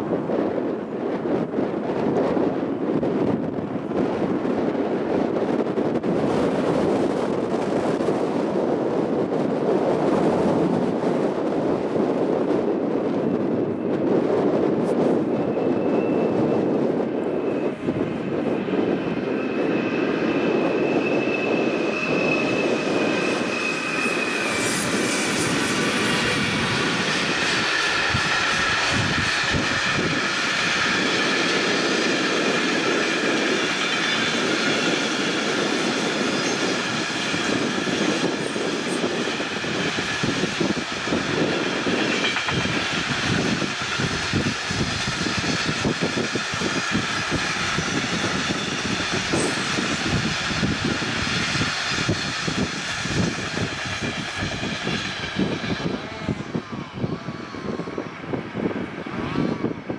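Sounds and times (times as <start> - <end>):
wheels rumbling on rails: 0.0 - 59.9
high wheel whine: 16.4 - 59.9.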